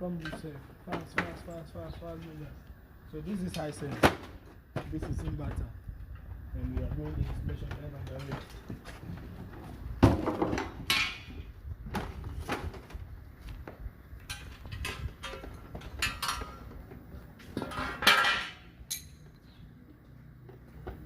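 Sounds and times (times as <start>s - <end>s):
metallic clinks and knocks: 14.3s - 16.8s, 17.6s - 19.5s.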